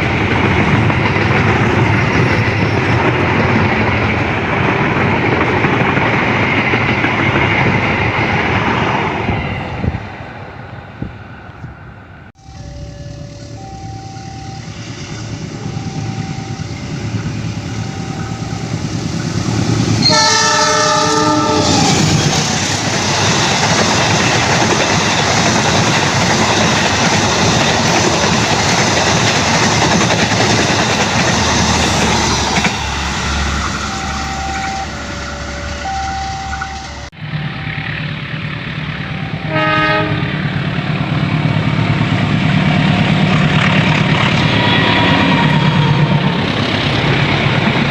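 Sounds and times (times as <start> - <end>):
train passing on rails: 0.0 - 47.9
level crossing warning signal: 12.4 - 21.9, 31.9 - 40.4
train horn: 20.0 - 22.1, 39.0 - 40.5.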